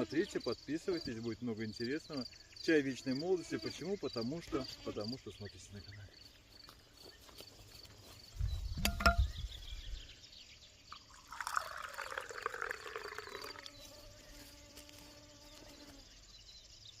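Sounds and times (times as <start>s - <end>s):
crickets chirping: 0.0s - 17.0s
liquid pouring: 10.9s - 13.7s.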